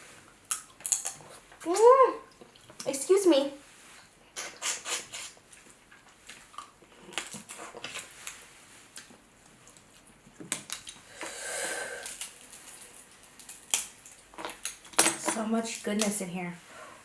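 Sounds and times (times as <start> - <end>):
crab shell cracking: 0.5 - 1.8, 12.0 - 15.0
chewing and sucking: 4.0 - 8.3.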